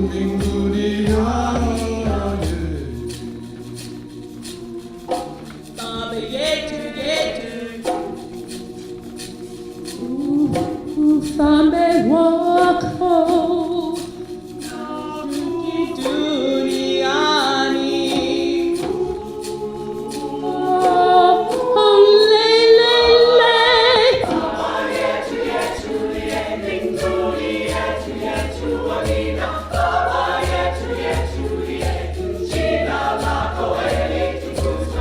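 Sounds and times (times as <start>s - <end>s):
low drum: 0.0s - 3.4s, 33.7s - 35.0s
choir singing: 0.0s - 35.0s
percussion beat: 0.0s - 35.0s.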